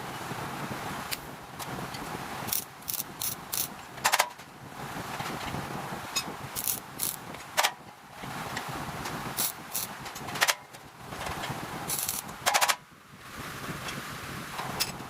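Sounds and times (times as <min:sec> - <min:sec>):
metalworking shop background noise: 0:01.0 - 0:05.5, 0:06.1 - 0:12.8.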